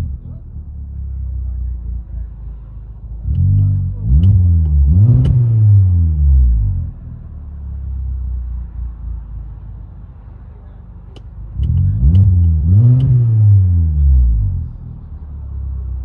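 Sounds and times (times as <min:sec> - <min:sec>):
engine throttle blips: 0:00.0 - 0:07.2, 0:11.1 - 0:15.1
car engine idling: 0:00.0 - 0:16.0.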